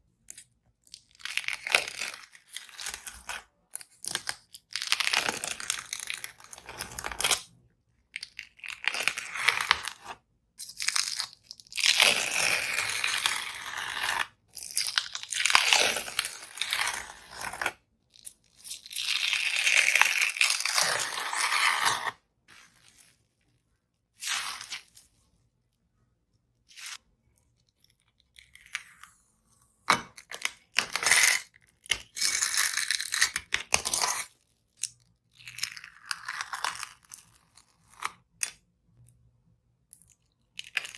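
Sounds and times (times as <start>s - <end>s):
slime skin tearing: 24.2s - 25.0s.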